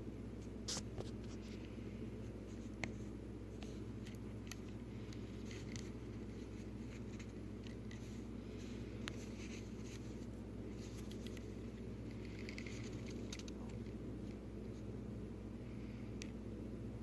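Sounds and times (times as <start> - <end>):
low hum: 0.0 - 17.0
handling clicks and scratches: 2.5 - 14.9.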